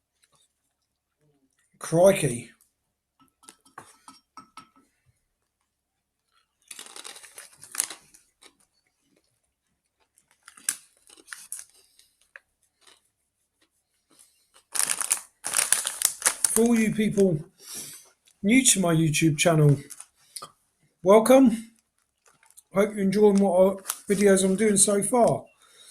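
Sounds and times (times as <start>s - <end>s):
crisp packet crackling: 6.6s - 8.7s, 10.0s - 13.0s, 14.5s - 17.4s, 19.5s - 20.2s, 21.8s - 25.4s
crunching and chewing crisps: 6.6s - 9.3s, 9.9s - 13.1s, 14.1s - 16.8s, 19.8s - 20.2s, 21.8s - 22.7s, 23.8s - 24.3s.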